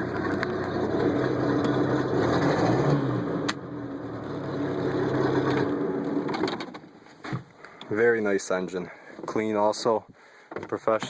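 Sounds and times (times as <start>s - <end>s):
boat engine revving: 0.0s - 6.4s.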